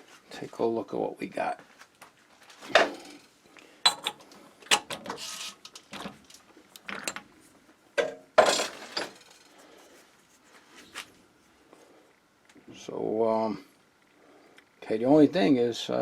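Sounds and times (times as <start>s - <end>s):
metal clanks and rattles: 8.0s - 9.5s.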